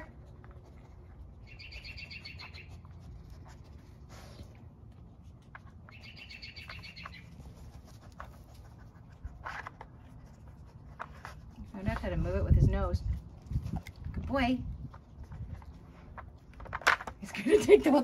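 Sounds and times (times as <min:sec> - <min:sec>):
bird chirping trill: 0:01.4 - 0:02.8, 0:05.9 - 0:07.4.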